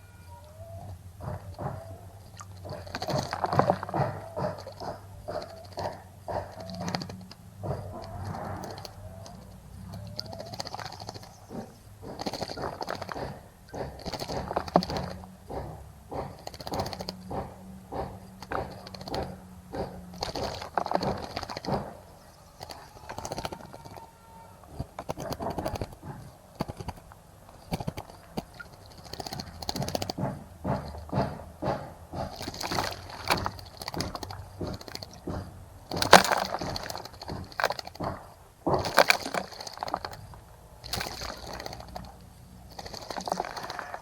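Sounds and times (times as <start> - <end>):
birds splashing in water: 0.0 - 44.0.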